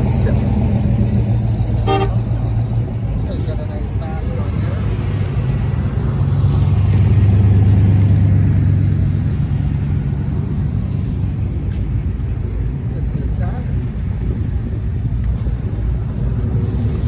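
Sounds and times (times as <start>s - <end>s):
car engine droning: 0.0s - 17.0s.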